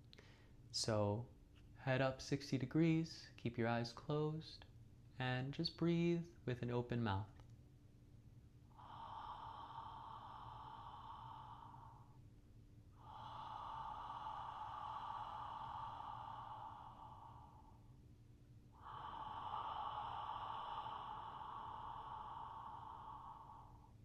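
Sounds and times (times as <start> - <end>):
open-mouth throat breathing: 8.7 - 12.2, 13.0 - 17.9, 18.8 - 24.0.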